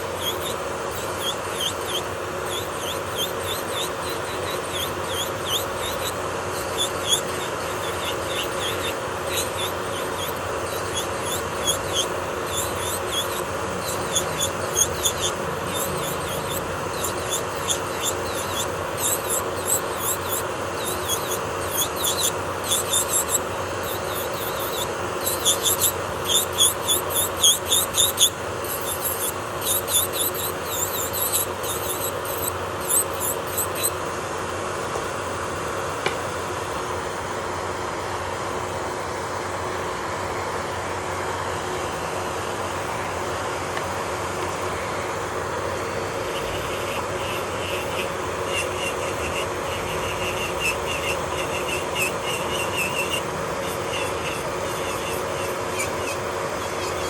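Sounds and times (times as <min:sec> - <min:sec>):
nail drill bit squeaking: 0:00.0 - 0:34.0, 0:46.4 - 0:57.0
electric nail drill humming: 0:00.0 - 0:34.1, 0:45.5 - 0:57.0.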